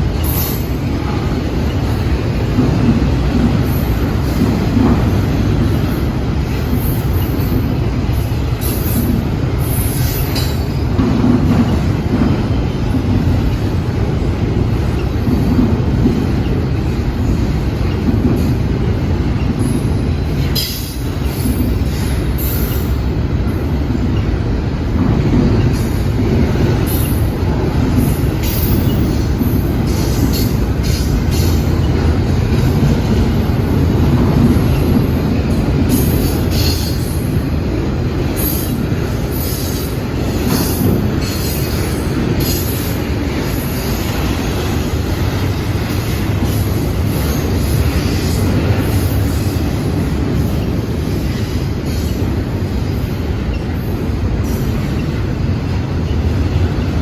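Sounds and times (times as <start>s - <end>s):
train cars rumbling past: 0.0s - 57.0s.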